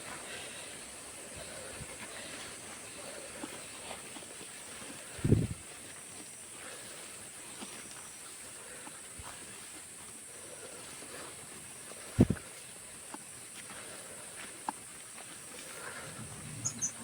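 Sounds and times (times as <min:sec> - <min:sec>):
dull low thumps: 0:05.2 - 0:05.6, 0:12.2 - 0:12.4.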